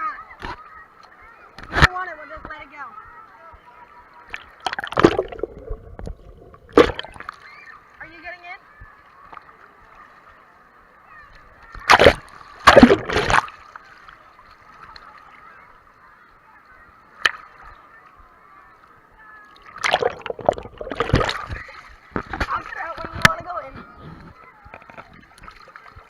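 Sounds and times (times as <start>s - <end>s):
muffled water splashing: 3.8s - 10.5s, 11.4s - 16.1s, 17.0s - 26.0s.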